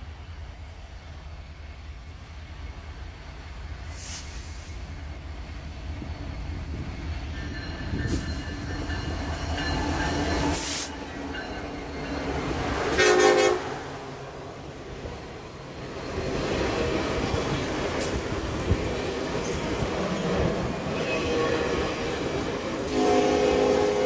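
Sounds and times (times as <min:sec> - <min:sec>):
train rumbling: 0:00.0 - 0:24.0
locomotive horn blast: 0:12.9 - 0:14.1, 0:21.0 - 0:22.1, 0:22.8 - 0:24.0.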